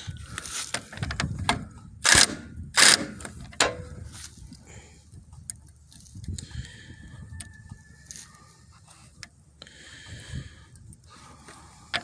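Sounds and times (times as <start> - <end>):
metal clanking and scraping: 0.5 - 4.4.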